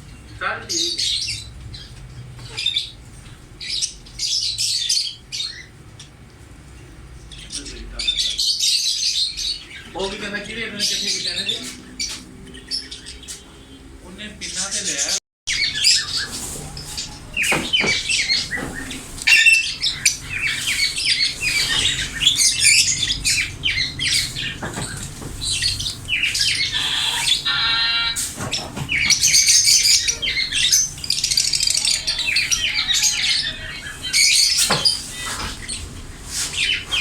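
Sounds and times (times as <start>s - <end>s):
parakeet chirps and squawks: 0.4s - 3.0s, 3.6s - 6.2s, 7.3s - 10.0s, 10.6s - 13.8s, 14.4s - 37.0s
harsh buzzing squawk: 14.5s - 37.0s.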